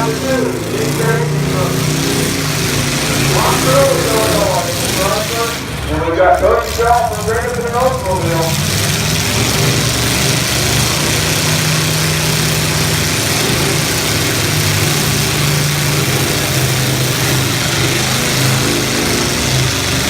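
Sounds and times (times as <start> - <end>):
car engines revving: 0.0 - 20.0.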